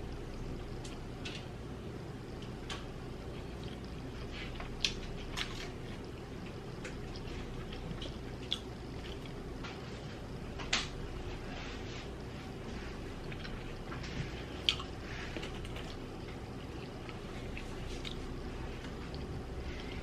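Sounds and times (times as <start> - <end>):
low background hum: 0.0 - 20.0
mouth chewing clicks and smacks: 6.8 - 9.4, 14.6 - 18.3.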